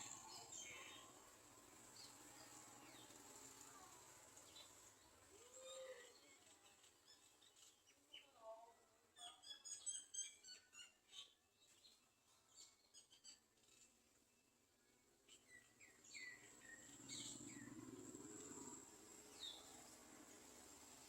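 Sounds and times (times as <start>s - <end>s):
faint steady hiss: 0.0s - 9.1s, 16.0s - 21.0s
small birds chirping: 0.0s - 21.0s.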